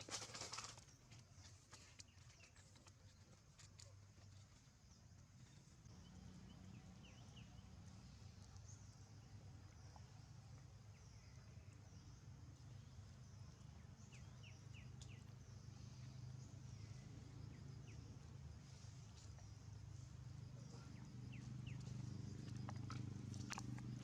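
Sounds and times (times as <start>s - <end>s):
steady low hum: 5.0s - 24.0s.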